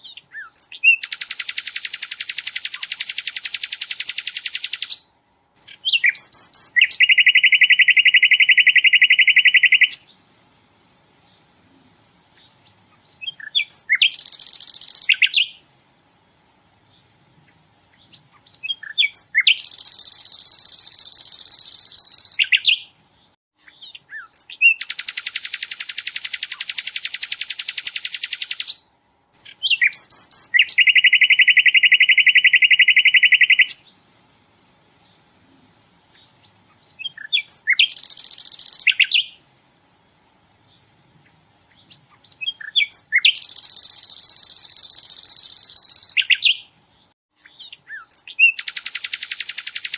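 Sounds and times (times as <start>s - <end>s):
bird quick chirps: 0.0s - 10.1s, 12.4s - 15.7s, 17.9s - 22.9s, 23.6s - 33.9s, 36.2s - 39.4s, 41.7s - 49.9s
bird rapid repeated notes: 13.4s - 15.3s, 19.1s - 22.7s, 37.5s - 39.2s, 42.9s - 46.6s, 48.6s - 49.9s.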